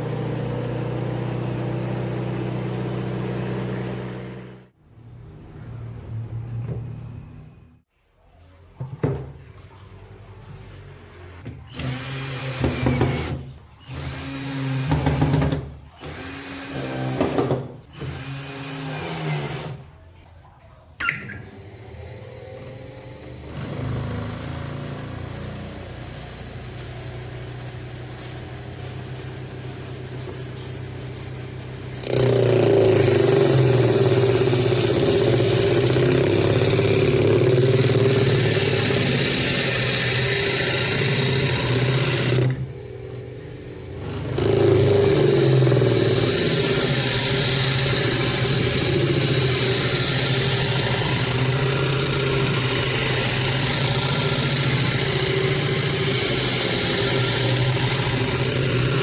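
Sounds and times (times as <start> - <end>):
electric motor humming: 21.5 - 59.0.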